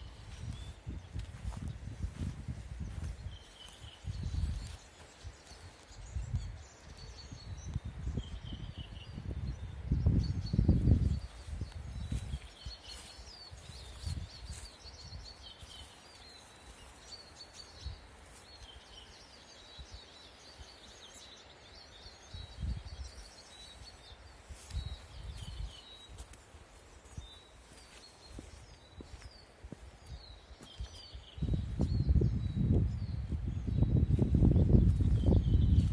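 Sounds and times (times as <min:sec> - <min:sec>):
birds chirping and singing: 0:00.1 - 0:26.3.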